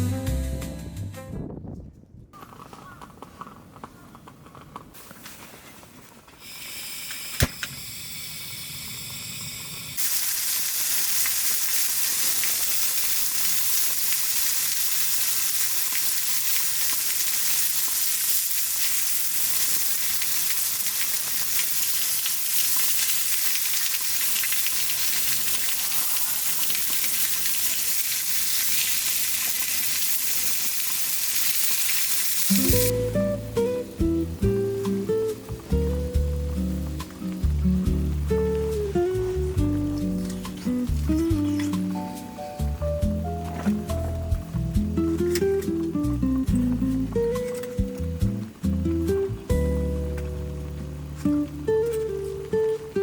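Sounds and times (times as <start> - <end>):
food sizzling in a pan: 6.4 - 42.8.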